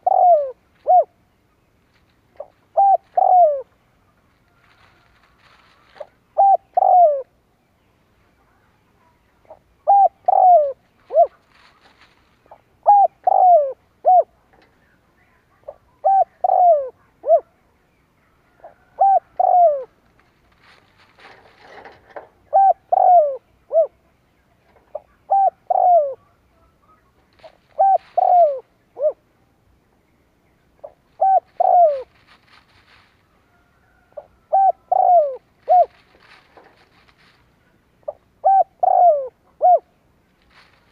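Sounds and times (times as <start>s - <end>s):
dove cooing: 0.0s - 1.2s, 2.3s - 7.4s, 9.4s - 14.8s, 15.6s - 17.6s, 18.3s - 24.1s, 24.7s - 29.4s, 30.8s - 40.9s.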